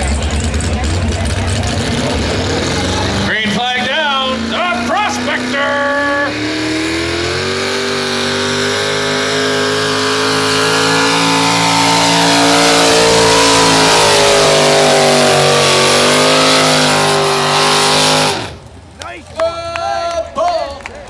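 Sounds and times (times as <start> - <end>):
truck engine at full throttle: 0.0 - 19.4.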